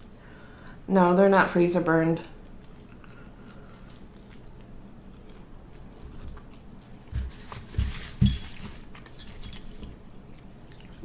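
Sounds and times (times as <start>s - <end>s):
chewing food: 2.3s - 7.1s, 8.9s - 11.0s.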